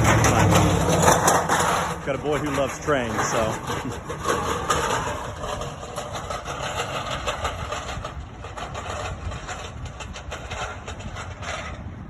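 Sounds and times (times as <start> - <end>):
engine rumbling: 0.0 - 12.0.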